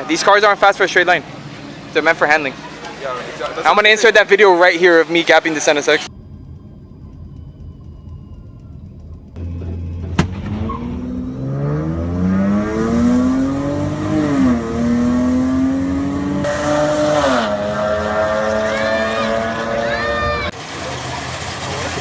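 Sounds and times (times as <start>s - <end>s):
car engine accelerating through gears: 7.1s - 22.0s.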